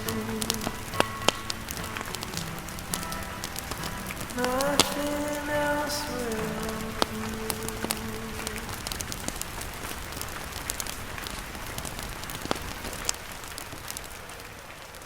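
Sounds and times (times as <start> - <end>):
rain on a tent: 0.0 - 15.0.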